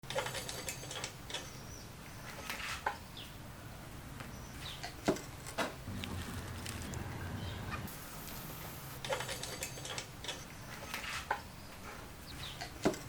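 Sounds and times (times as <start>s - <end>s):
low steady hum: 5.8s - 9.1s.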